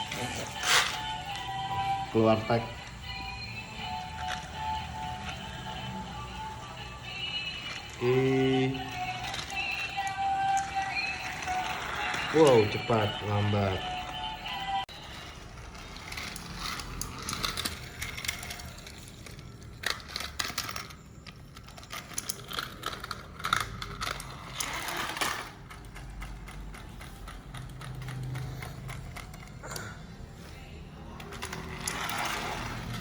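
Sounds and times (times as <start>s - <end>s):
toy train motor whirring: 7.0s - 29.8s, 31.2s - 33.0s.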